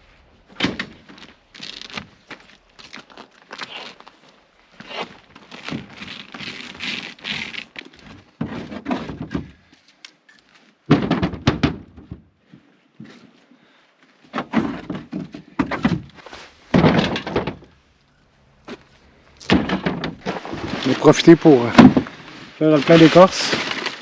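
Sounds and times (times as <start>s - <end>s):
wood and bark dropping: 14.3s - 17.8s, 19.4s - 24.0s.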